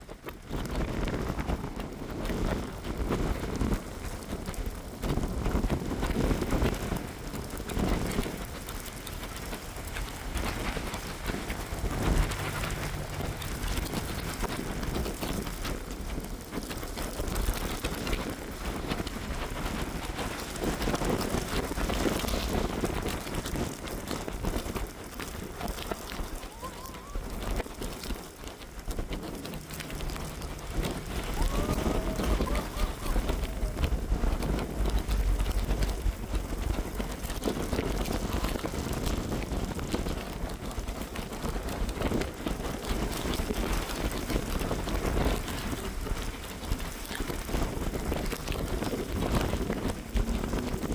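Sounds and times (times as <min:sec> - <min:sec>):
wind gusts buffeting microphone: 0:00.0 - 0:50.9
rain hissing: 0:05.8 - 0:40.8, 0:47.6 - 0:50.9.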